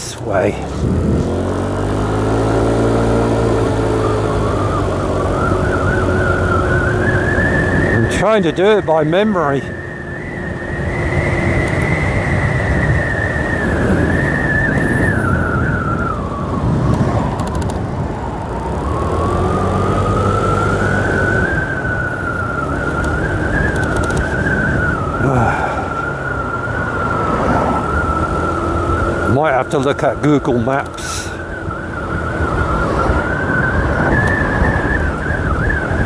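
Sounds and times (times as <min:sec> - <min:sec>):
motorbike engine whine: 0:00.0 - 0:36.0
road and wind noise: 0:00.0 - 0:36.0.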